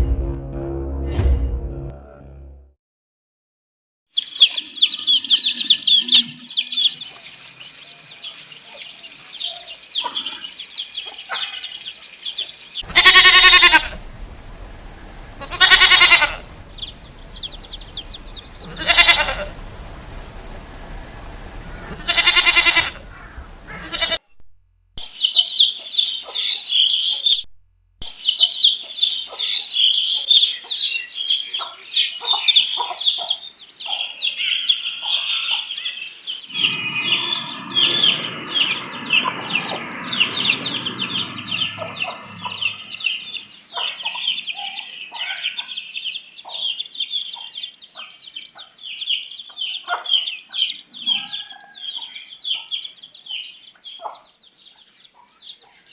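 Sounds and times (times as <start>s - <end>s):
chickens peeping and clucking: 4.2s - 13.2s, 13.8s - 22.0s, 28.2s - 55.8s
rough low rustling: 12.8s - 24.2s
goat bleating: 12.9s - 14.0s, 15.4s - 16.5s, 18.6s - 19.6s, 21.9s - 23.1s, 23.7s - 24.2s.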